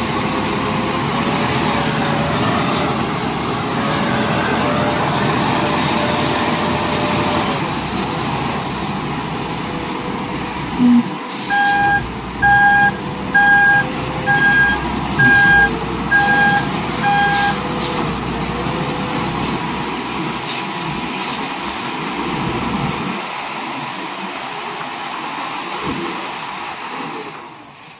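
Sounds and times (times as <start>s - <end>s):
heavy machine engine running: 0.0s - 23.7s
backup alarm beeping: 10.8s - 17.6s.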